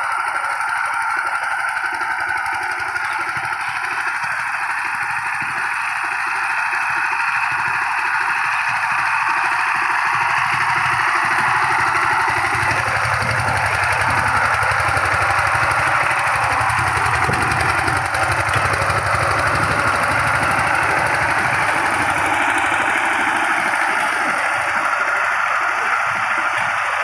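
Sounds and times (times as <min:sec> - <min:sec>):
tiller engine chugging: 0:00.0 - 0:27.0.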